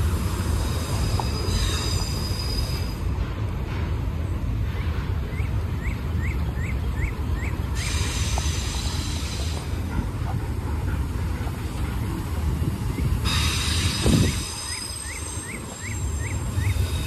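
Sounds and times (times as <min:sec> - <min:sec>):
train wheels rumbling on rail: 0:00.0 - 0:17.0
high hiss: 0:07.8 - 0:09.8, 0:12.1 - 0:17.0.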